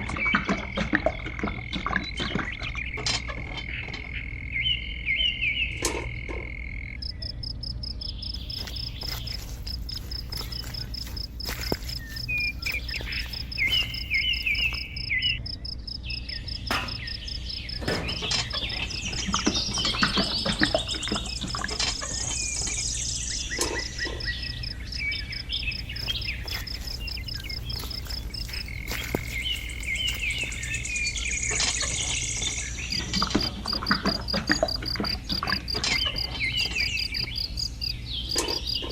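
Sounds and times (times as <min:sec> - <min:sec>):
chirping animal calls: 0:00.0 - 0:38.9
high pulsing insect trill: 0:07.0 - 0:35.7.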